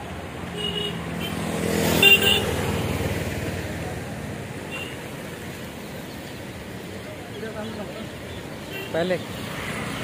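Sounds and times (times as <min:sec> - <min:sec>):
vehicle passing by: 0:01.0 - 0:04.6, 0:09.0 - 0:10.0.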